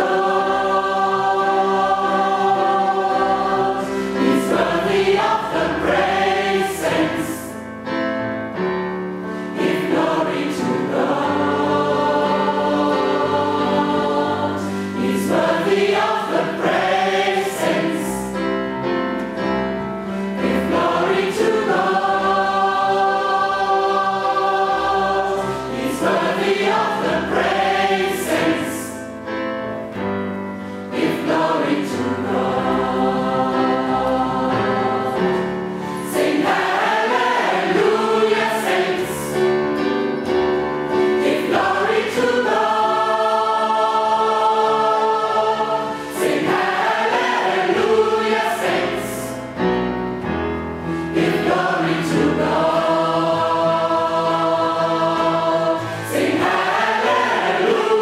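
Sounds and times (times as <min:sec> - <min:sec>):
choir singing: 0:00.0 - 0:58.0.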